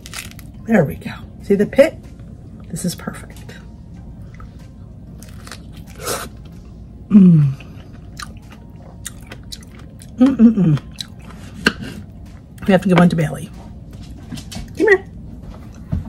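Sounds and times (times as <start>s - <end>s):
person chewing peach: 4.2s - 12.6s.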